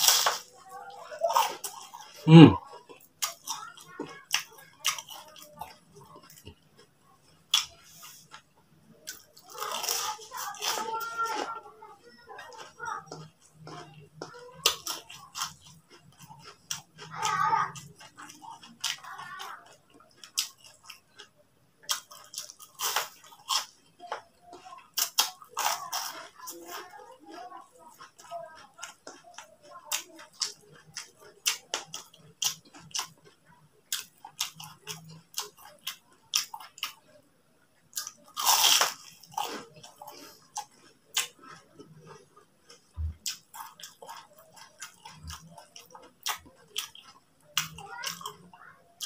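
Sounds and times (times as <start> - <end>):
wet chewing clicks and smacks: 0.0 - 10.4, 12.4 - 37.2, 37.8 - 49.0
crunchy bite: 37.9 - 39.9.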